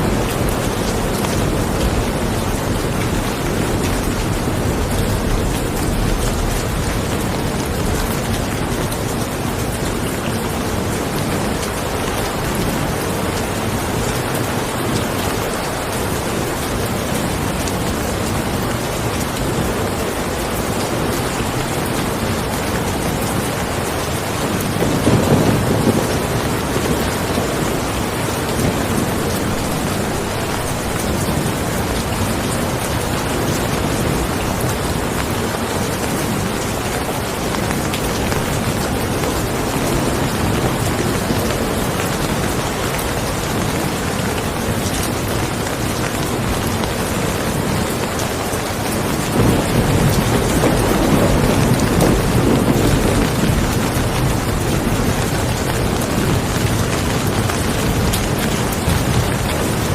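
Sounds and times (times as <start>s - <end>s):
steady rain falling: 0.0s - 59.9s
low rumble of thunder: 21.4s - 43.8s, 49.0s - 59.9s.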